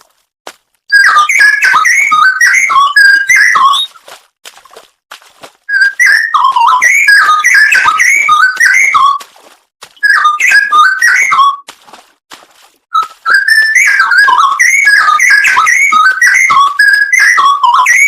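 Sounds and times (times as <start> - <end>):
bird singing whistled phrases: 0.9 - 4.0, 5.7 - 9.2, 10.0 - 11.6, 13.0 - 18.0.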